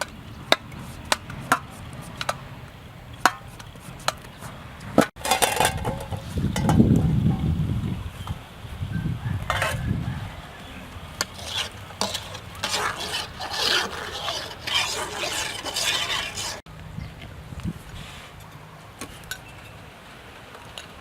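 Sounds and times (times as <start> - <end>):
utensil scraping and stirring: 0.0 - 6.3, 11.1 - 16.6.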